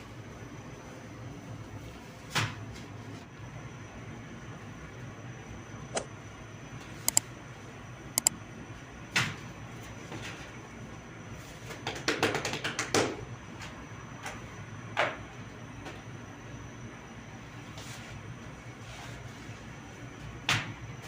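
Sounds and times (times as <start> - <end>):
steady background noise: 0.0 - 11.6.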